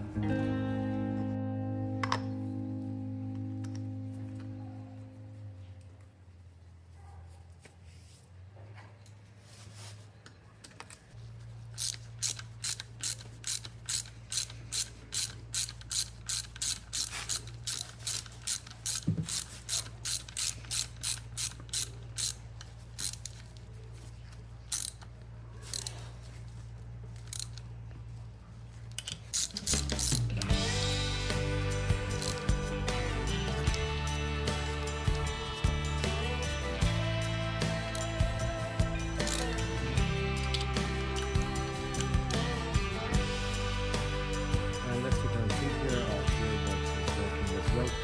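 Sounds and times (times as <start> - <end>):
ratchet wrench clicking: 11.7 - 23.6, 24.7 - 26.0, 27.2 - 27.6, 29.0 - 30.6, 31.2 - 43.3.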